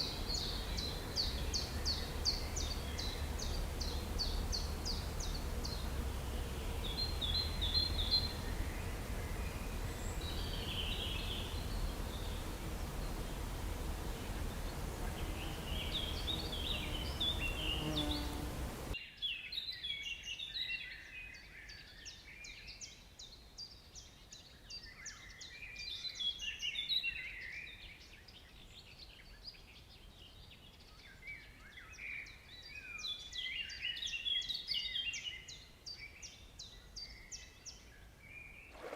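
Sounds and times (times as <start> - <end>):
birds chirping and calling: 0.0 - 19.0
steady low rumble and hiss: 0.0 - 19.0.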